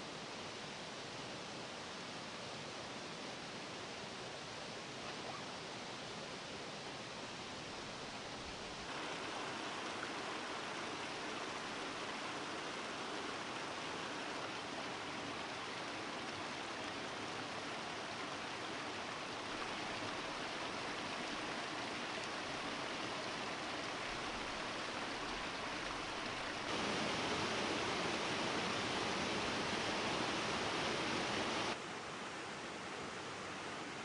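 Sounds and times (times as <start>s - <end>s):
waterfall rushing: 8.8s - 31.8s.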